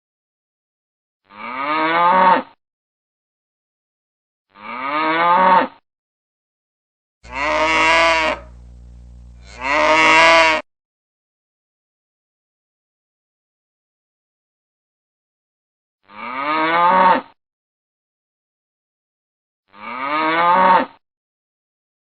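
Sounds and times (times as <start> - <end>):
cow mooing: 7.2 - 8.7, 9.4 - 10.6, 19.7 - 20.9
steady low hum: 7.2 - 10.5.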